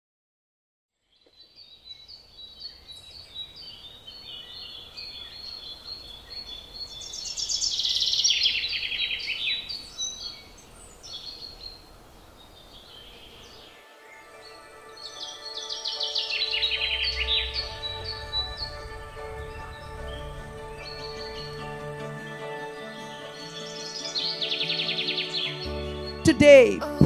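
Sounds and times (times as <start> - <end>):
birds chirping and trilling: 1.0 - 26.4
music: 13.8 - 27.0.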